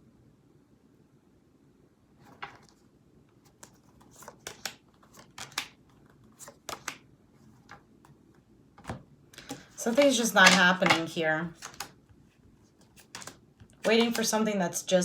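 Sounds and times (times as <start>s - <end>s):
cards flicking and tapping: 3.5s - 7.8s, 8.8s - 12.0s, 12.9s - 14.4s.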